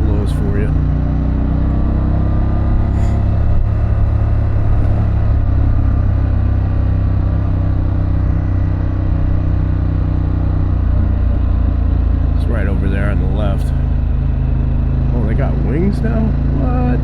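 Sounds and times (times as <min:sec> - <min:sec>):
motorcycle engine running steadily: 0:00.0 - 0:17.0.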